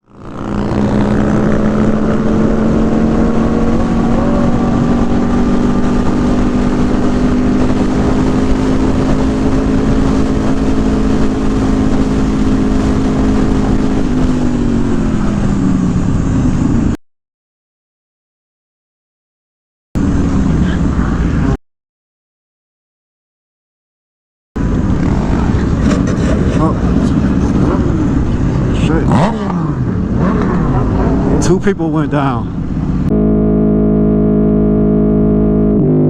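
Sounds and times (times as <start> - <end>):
motorcycle engine running: 0.0 - 17.0
road and wind noise: 0.0 - 17.0, 20.0 - 21.6, 24.6 - 36.0.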